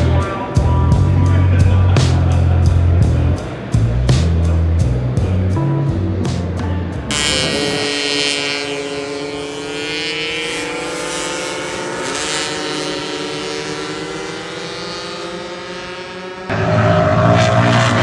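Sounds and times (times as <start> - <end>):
music: 0.0 - 7.4
motorcycle engine revving high: 7.1 - 18.0.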